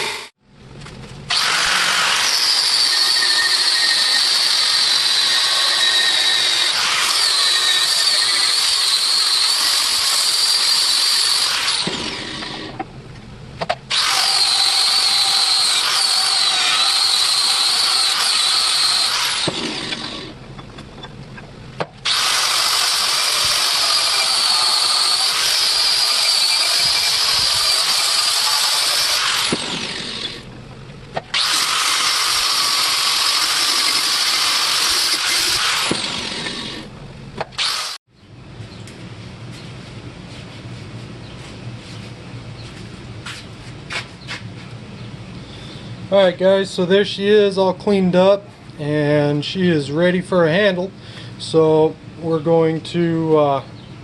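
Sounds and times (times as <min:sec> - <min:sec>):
electric grinder whining: 0:00.0 - 0:00.3, 0:01.3 - 0:12.8, 0:13.9 - 0:21.1, 0:22.0 - 0:30.5, 0:31.3 - 0:38.0
motor spinning down: 0:13.9 - 0:20.4, 0:22.0 - 0:30.5, 0:31.3 - 0:37.0.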